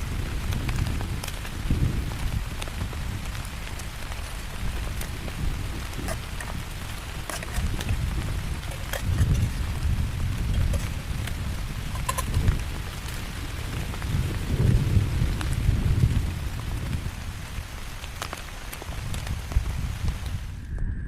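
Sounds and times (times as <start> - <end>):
heavy rain falling: 0.0 - 20.7
strong wind rumble: 0.0 - 21.0.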